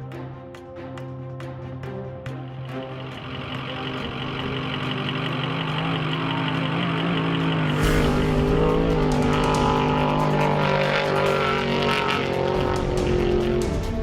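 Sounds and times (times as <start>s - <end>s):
truck engine at speed: 2.4s - 14.0s
rush of passing noise: 2.8s - 14.0s.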